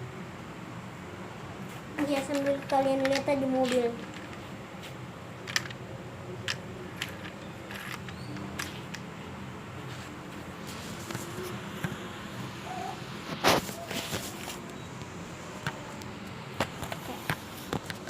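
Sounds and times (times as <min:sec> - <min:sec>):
steady background hum: 0:00.0 - 0:18.0
plastic toy car clicks: 0:02.3 - 0:04.4, 0:05.5 - 0:05.8, 0:06.5 - 0:09.0.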